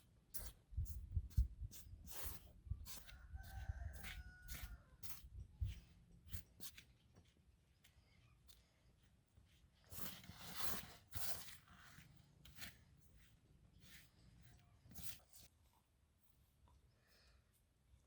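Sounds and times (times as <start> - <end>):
rooster crowing: 3.1 - 5.0.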